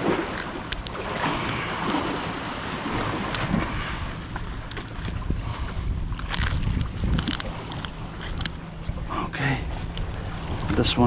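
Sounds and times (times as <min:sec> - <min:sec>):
waves washing: 0:00.0 - 0:11.0
wind buffeting the microphone: 0:02.9 - 0:11.0.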